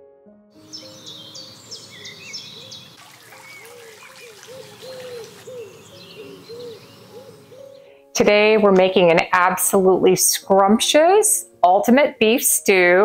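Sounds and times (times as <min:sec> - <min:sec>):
low bird call notes: 0:00.6 - 0:07.9
birds chirping: 0:00.6 - 0:09.2.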